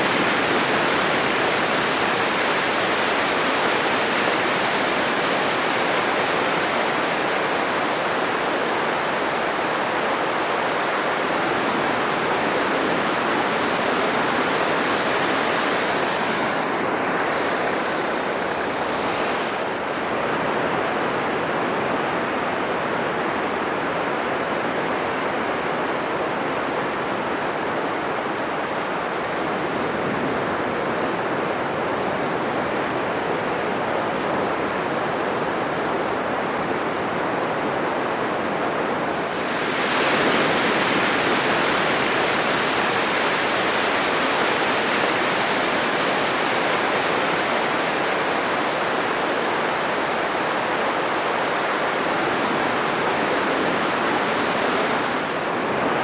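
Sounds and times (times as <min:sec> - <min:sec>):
surf breaking on sandy beach: 0:00.0 - 0:21.5, 0:33.0 - 0:56.0.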